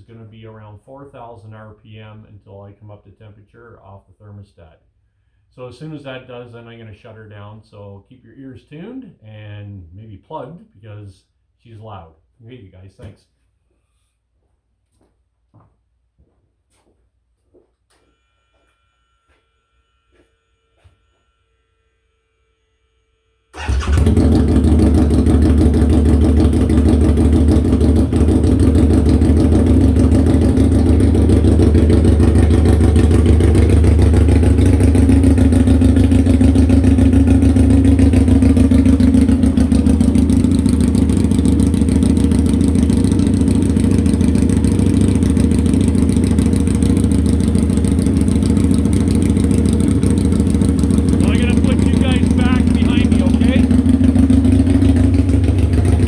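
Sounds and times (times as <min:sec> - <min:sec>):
motorcycle engine running loud: 0:23.6 - 0:56.0.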